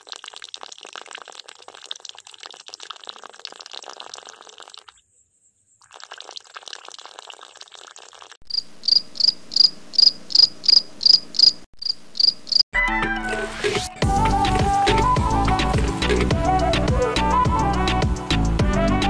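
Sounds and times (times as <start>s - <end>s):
insect chirping: 4.4s - 6.4s, 8.5s - 12.6s
music: 12.8s - 19.0s.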